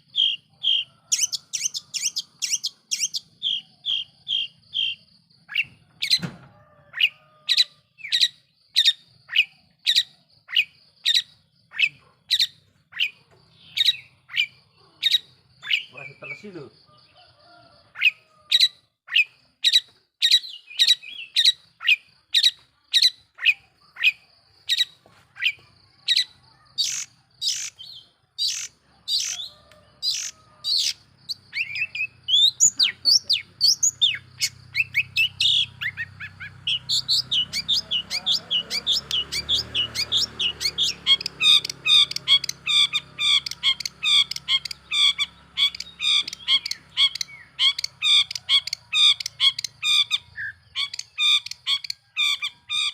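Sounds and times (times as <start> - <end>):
bird harsh scratchy calls: 0.2 - 6.2, 18.0 - 52.9.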